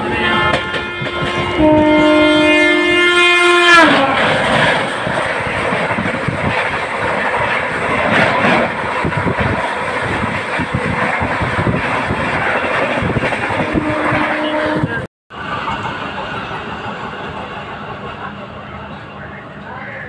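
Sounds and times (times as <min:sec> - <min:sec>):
multi-tone train horn: 0:00.0 - 0:04.4, 0:13.5 - 0:15.1
train wheel clatter: 0:03.9 - 0:19.0.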